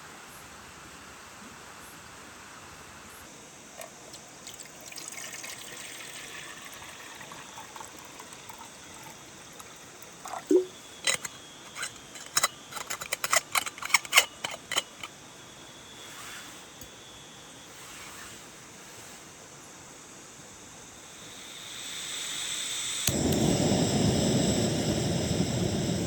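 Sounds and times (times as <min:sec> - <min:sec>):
steady rain hiss: 0:00.0 - 0:11.6, 0:17.6 - 0:26.0.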